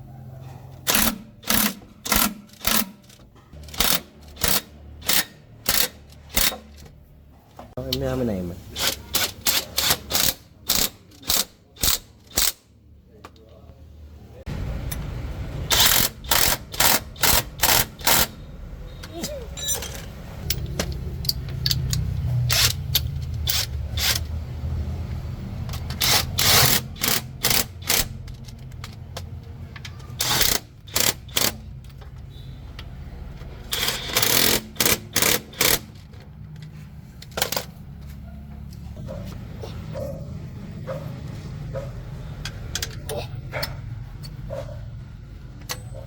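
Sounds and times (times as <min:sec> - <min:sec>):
pneumatic impact wrench rattling: 0:00.8 - 0:06.9, 0:08.8 - 0:12.7, 0:15.6 - 0:18.4, 0:19.1 - 0:24.4, 0:25.7 - 0:32.4, 0:33.6 - 0:36.3, 0:37.2 - 0:37.8.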